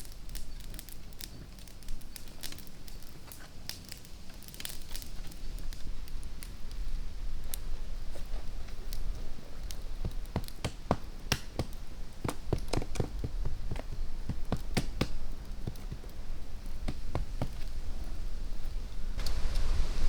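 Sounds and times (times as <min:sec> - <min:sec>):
sharp taps and knocks: 0:10.0 - 0:16.1, 0:16.8 - 0:17.7.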